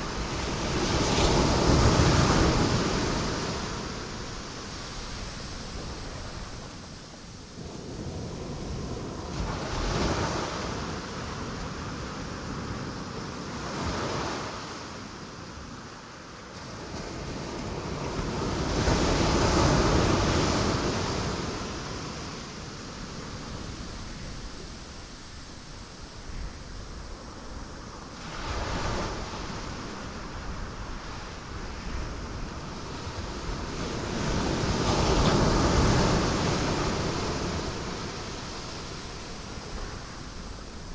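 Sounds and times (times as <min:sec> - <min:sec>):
waves breaking on rocks: 0:28.0 - 0:40.9.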